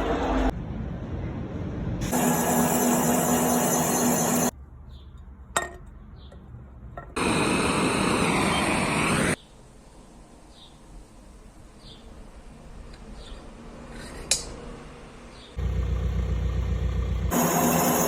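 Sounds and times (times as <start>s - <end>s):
machine hum: 15.6s - 18.0s
machine tool cutting metal: 17.3s - 18.0s.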